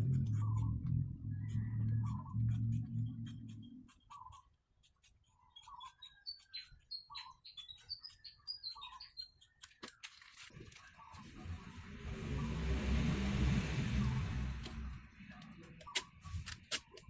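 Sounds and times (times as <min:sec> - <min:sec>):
faint bird chirping: 0:00.2 - 0:10.1.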